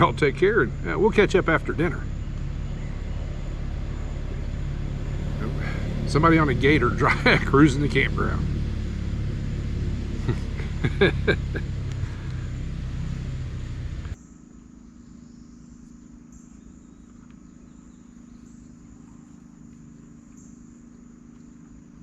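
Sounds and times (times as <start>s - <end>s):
utility vehicle engine running: 0.0s - 14.2s
crickets chirping: 0.0s - 22.0s.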